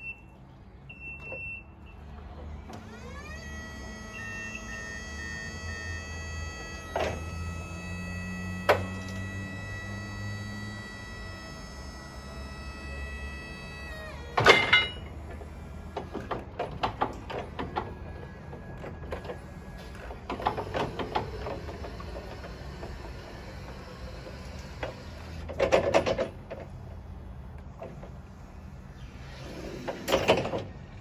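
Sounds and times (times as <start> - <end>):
electric motor whining: 2.4 - 25.5
metallic clanking and rattling: 14.4 - 15.4.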